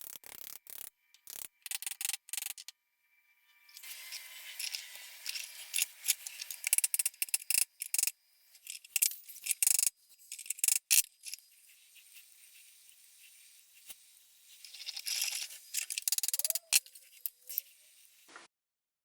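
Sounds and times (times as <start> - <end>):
hissing metal scrape: 3.7 - 7.8, 10.2 - 18.3
metal tools clicking and clinking: 3.7 - 11.4, 14.7 - 17.7.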